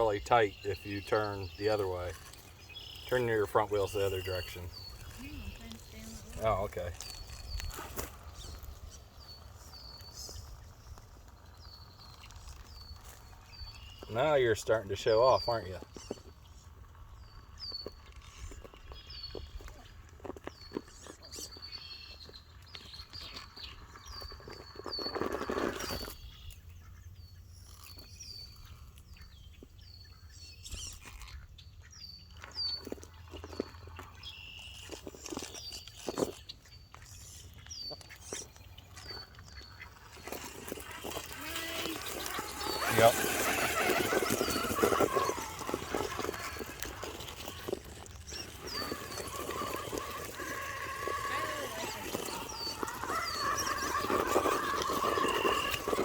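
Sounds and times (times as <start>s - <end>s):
small bird chirping: 0.0s - 56.0s
rough scraping noise: 39.1s - 56.0s
electric motor whining: 40.0s - 56.0s.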